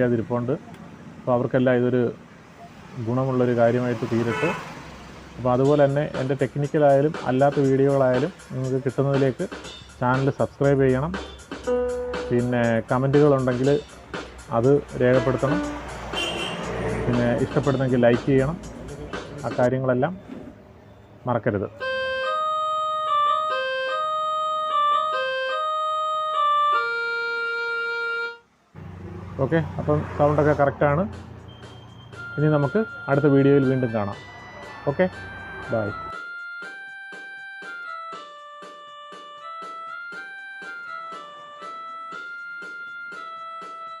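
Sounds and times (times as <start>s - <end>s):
electronic keyboard tune: 5.6s - 19.7s, 21.8s - 28.4s, 31.7s - 44.0s
steady beat: 5.6s - 19.7s, 31.1s - 44.0s.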